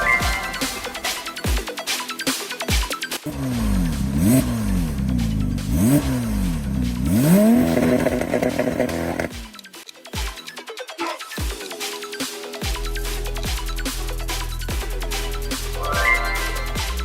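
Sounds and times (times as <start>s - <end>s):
electronic music: 0.0s - 17.0s
car engine revving: 3.3s - 9.5s.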